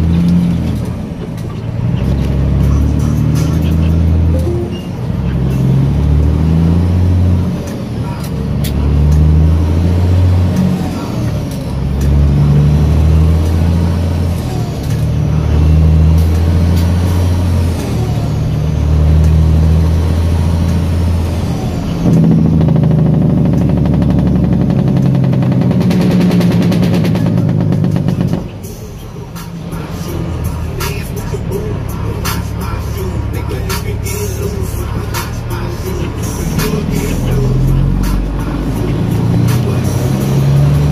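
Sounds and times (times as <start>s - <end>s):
diesel truck engine shifting gears: 0.0s - 40.9s.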